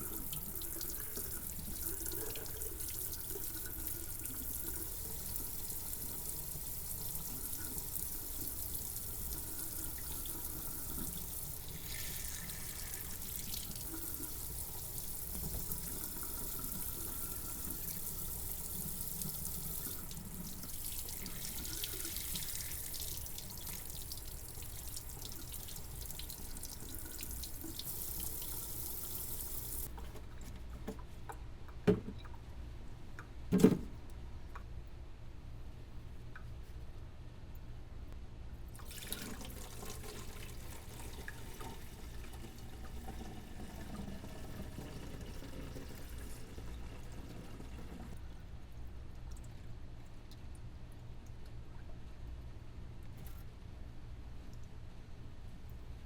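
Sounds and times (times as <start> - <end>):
water running from a tap: 0.0 - 29.9, 38.8 - 48.2.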